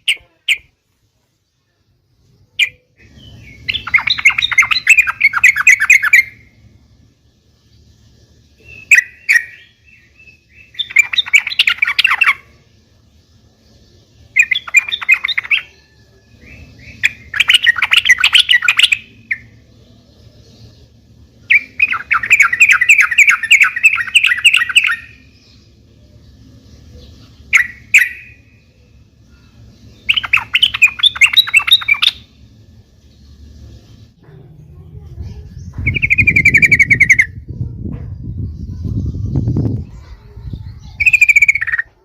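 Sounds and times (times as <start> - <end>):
bulbul singing: 0.0 - 42.0
faint low hum: 0.0 - 42.0.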